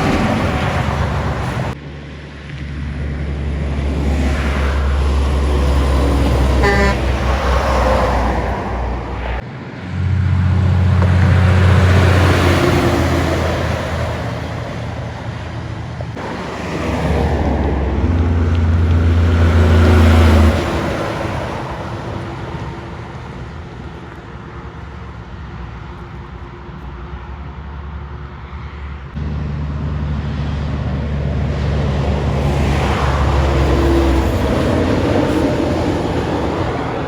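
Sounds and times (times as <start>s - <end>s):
trucks passing on highway: 0.0s - 37.0s.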